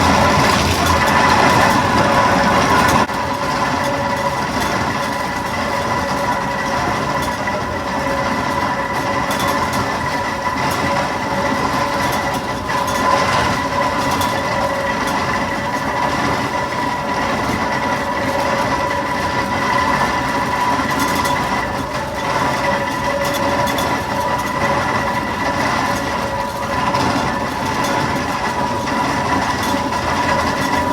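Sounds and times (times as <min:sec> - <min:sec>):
clatter of iron wheels: 0:00.0 - 0:30.9.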